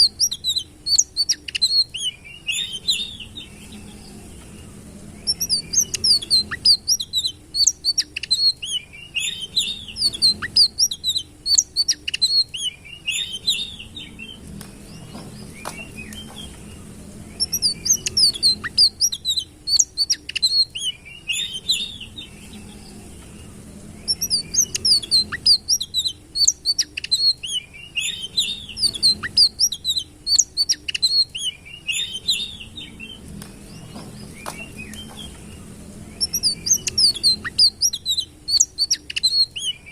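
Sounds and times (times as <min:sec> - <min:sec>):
songbird chirping and twittering: 0:00.0 - 0:39.9.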